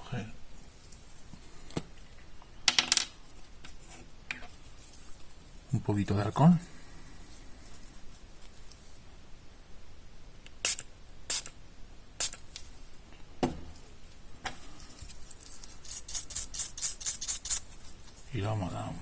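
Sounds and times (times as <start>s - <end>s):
short hissing sprays: 10.6s - 11.5s, 12.2s - 12.4s.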